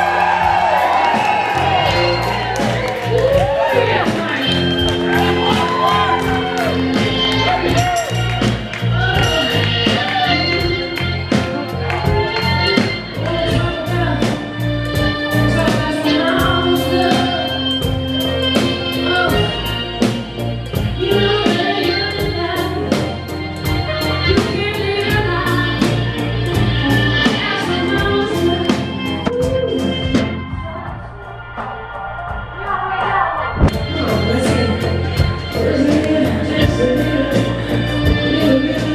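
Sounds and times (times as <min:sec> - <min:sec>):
live band playing: 0:00.0 - 0:38.9
woman singing: 0:08.9 - 0:19.8, 0:20.8 - 0:30.0, 0:32.6 - 0:38.9
drum hits: 0:31.0 - 0:33.9
backing voices singing: 0:31.1 - 0:38.9.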